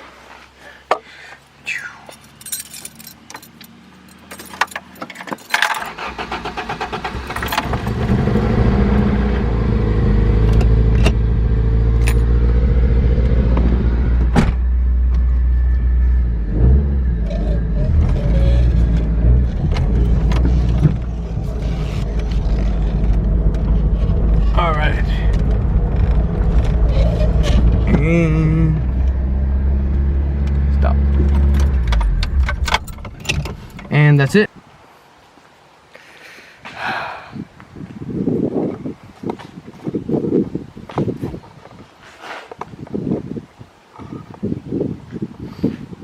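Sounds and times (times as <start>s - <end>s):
keys rattling in ignition: 2.0s - 8.0s, 31.1s - 34.0s
car engine cranking and running: 2.1s - 34.4s.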